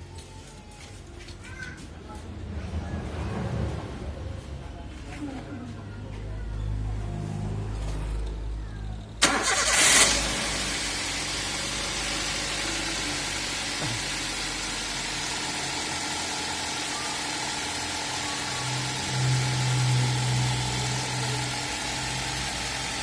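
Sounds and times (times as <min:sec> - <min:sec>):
car engine starting and running: 0:06.8 - 0:23.0.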